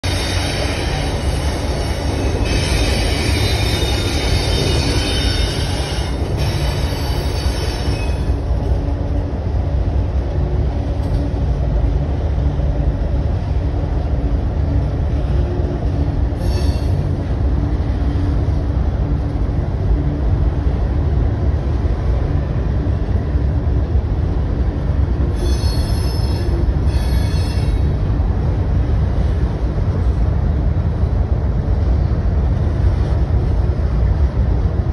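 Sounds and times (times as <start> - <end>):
train rumbling across trestle: 0.0 - 34.9
high-pitched wheel squeal: 0.1 - 8.4, 16.4 - 17.0, 25.4 - 27.9.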